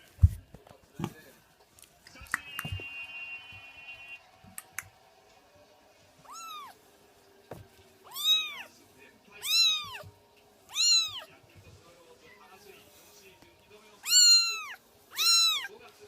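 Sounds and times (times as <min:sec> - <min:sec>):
kitten meowing: 0:06.2 - 0:06.8, 0:08.0 - 0:08.7, 0:09.4 - 0:10.1, 0:10.7 - 0:11.3, 0:14.0 - 0:15.7.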